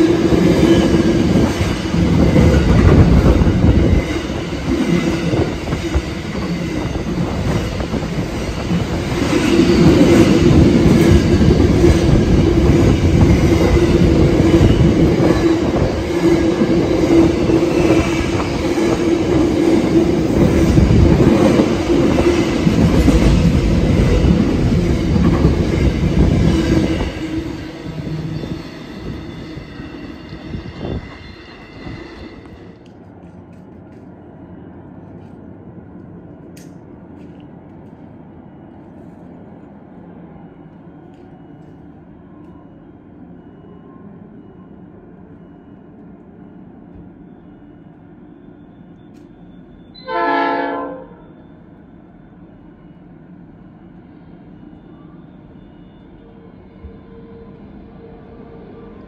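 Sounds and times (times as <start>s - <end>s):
train wheels whining: 0.0s - 39.4s
train wheels rumbling on rail: 0.0s - 59.0s.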